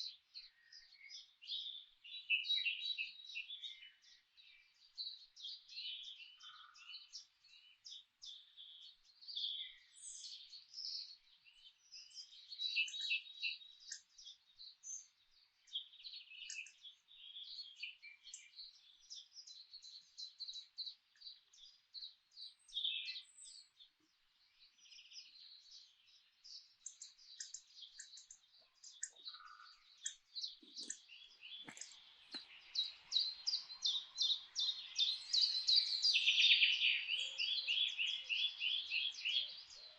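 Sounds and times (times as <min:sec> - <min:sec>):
songbirds chirping: 0:00.0 - 0:39.9
faint taps: 0:31.6 - 0:32.5.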